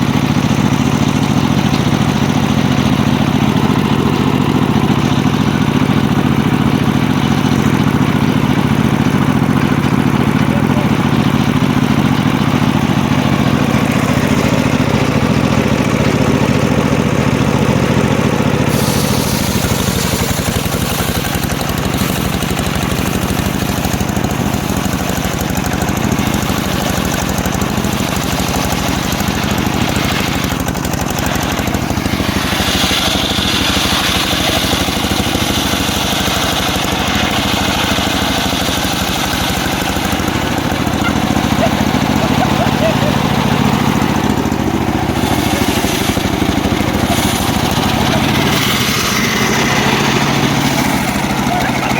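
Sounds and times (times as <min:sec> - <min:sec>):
circular sawmill running: 0:00.0 - 0:51.9
engine running loudly: 0:00.0 - 0:51.9
hissing noise: 0:18.7 - 0:21.1.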